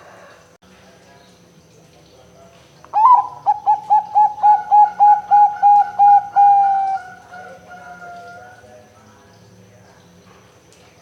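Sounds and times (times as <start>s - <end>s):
dove cooing: 3.0s - 8.6s.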